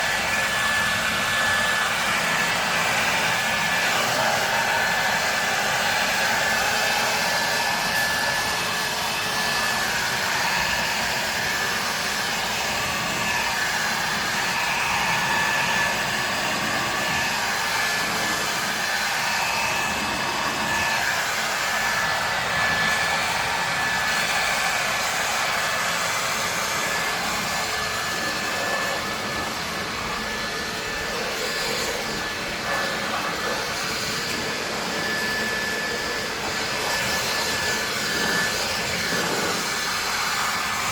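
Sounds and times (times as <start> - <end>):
pressure washer spraying hiss: 28.3 - 40.9.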